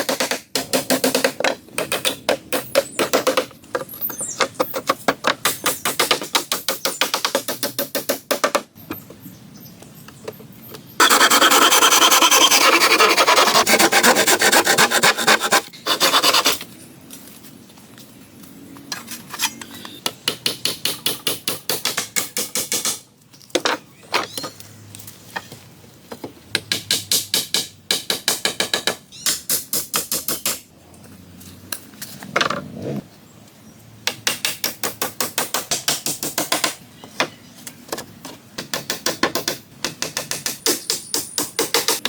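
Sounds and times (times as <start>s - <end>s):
hand tool rasping wood: 11.0s - 16.6s.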